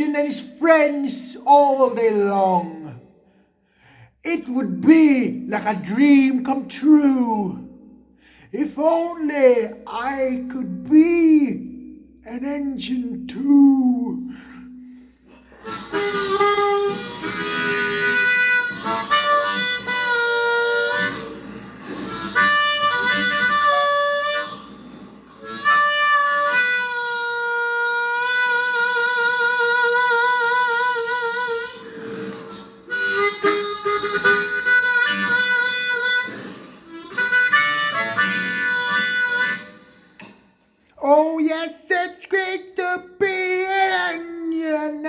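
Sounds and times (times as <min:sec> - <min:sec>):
blues harmonica solo: 0:14.3 - 0:40.5.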